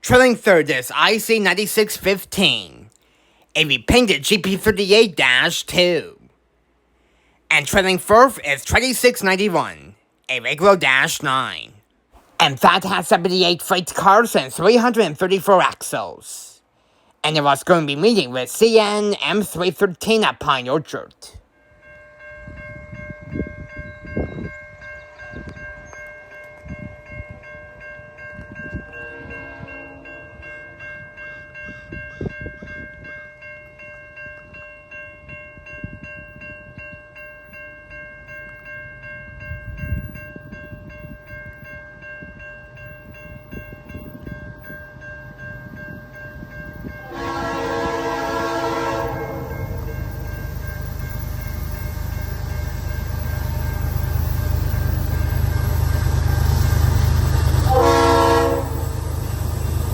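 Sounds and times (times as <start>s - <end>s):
locomotive rumble: 42.8s - 59.9s
locomotive horn blast: 47.0s - 50.2s, 57.6s - 59.3s.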